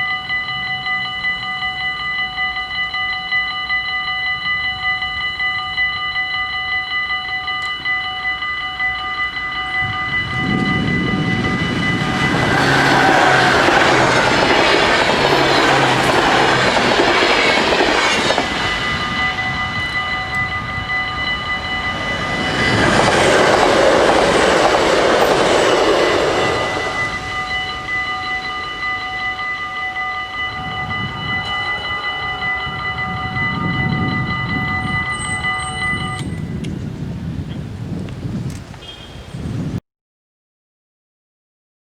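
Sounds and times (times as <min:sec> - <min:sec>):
level crossing bells ringing: 0:00.0 - 0:36.6
train rumbling by: 0:09.1 - 0:38.0
wheels clattering on rails: 0:10.1 - 0:29.5.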